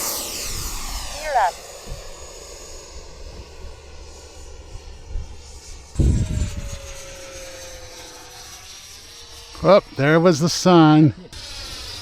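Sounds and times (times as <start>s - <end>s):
model jet whine: 0.0s - 12.0s
wind rumble on microphone: 0.4s - 2.2s, 4.6s - 7.2s.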